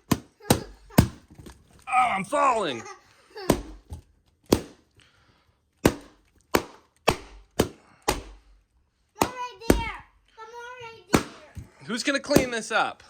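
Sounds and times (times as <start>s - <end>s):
balloons popping: 3.4s - 5.0s, 5.8s - 10.0s.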